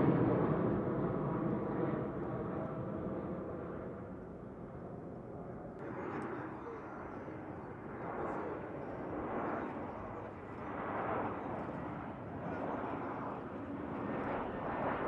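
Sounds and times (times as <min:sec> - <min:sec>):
jet engines roaring: 0:05.8 - 0:15.0.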